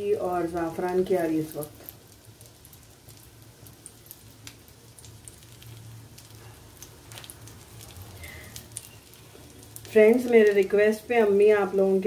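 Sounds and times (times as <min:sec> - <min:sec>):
ghee sizzling in a pan: 0:00.0 - 0:12.0
low steady hum: 0:00.0 - 0:12.0
small pops and crackles: 0:00.4 - 0:10.8.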